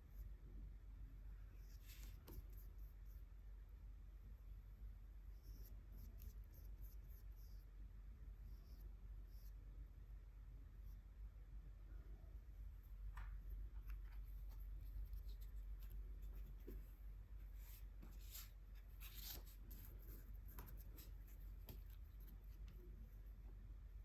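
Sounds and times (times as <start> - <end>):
soft clicks and taps: 12.9 - 17.0, 20.4 - 22.9.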